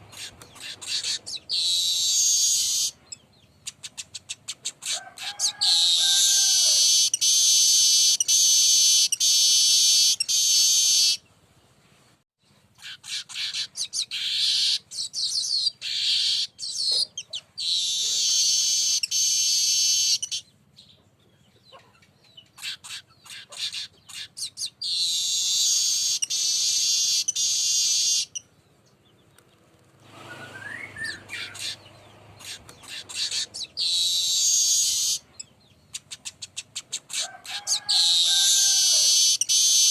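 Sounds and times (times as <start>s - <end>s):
weaver bird buzzy song: 0.0s - 39.9s
bird chips and clicks: 35.9s - 39.9s.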